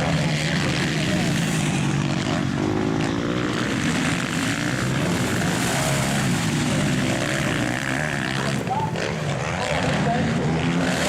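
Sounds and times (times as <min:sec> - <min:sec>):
motorcycle engines running hard: 0:00.0 - 0:11.0.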